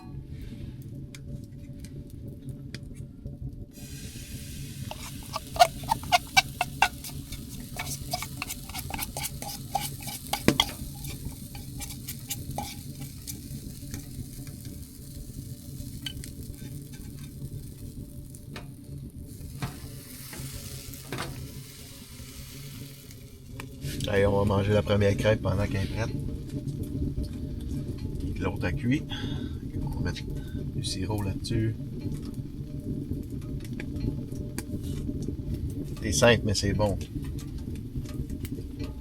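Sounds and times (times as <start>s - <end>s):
batter sizzling in a pan: 3.7s - 39.0s
utensil stirring and clicking: 4.7s - 21.6s.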